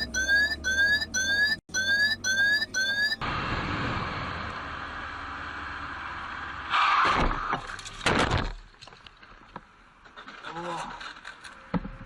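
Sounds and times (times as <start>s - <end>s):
car road and wind noise: 2.2s - 8.0s.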